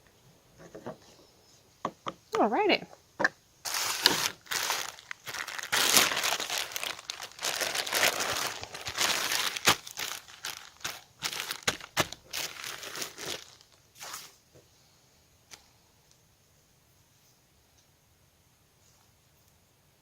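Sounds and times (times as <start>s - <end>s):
plastic packaging crinkling: 3.6s - 14.4s.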